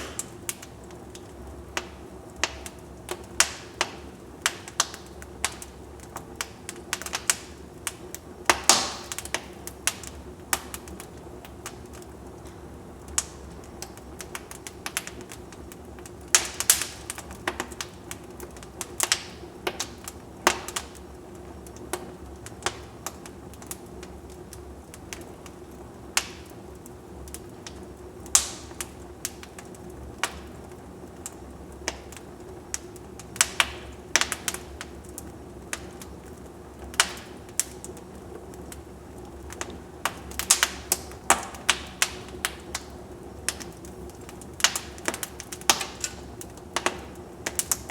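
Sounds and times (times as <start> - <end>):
low background noise: 0.0 - 47.9
wood fire crackling: 0.0 - 47.9.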